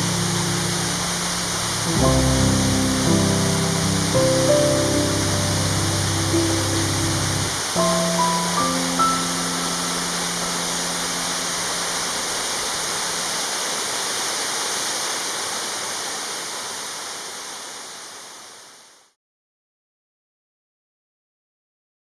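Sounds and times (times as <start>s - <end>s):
held music notes: 0.0s - 12.8s
waterfall pouring: 0.0s - 18.6s.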